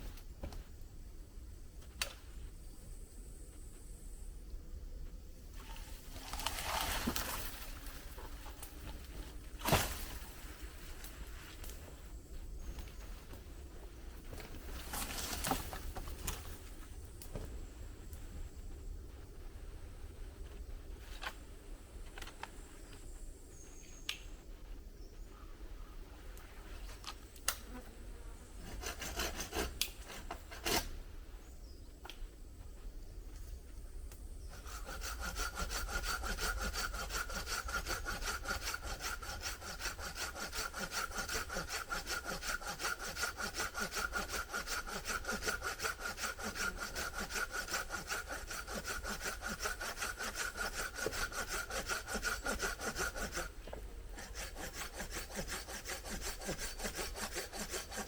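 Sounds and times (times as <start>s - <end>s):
hand saw cutting wood: 6.2s - 10.2s, 28.6s - 31.0s, 34.5s - 58.0s.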